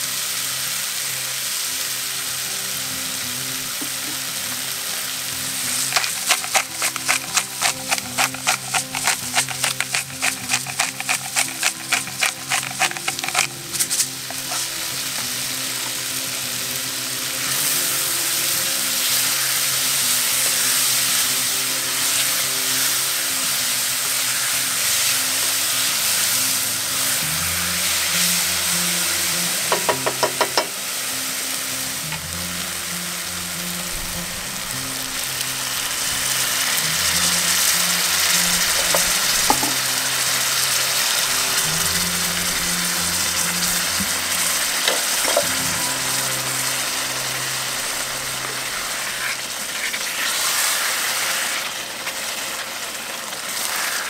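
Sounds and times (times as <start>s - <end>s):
mushrooms sizzling in a pot: 0.0s - 54.0s
wooden spoon stirring: 5.6s - 15.5s, 37.5s - 39.8s, 43.7s - 45.6s
pepper grinder clicking: 5.7s - 15.3s, 38.6s - 39.8s, 43.7s - 45.6s.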